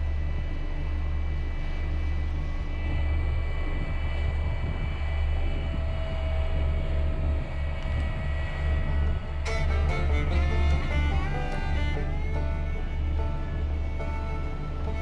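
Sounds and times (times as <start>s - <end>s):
heavy machinery engine drone: 8.5s - 15.0s.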